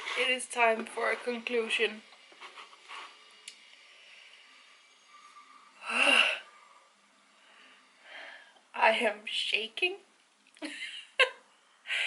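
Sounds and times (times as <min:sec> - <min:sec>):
quiet breathing: 0:02.2 - 0:08.8
woman exhaling heavily: 0:05.7 - 0:06.8.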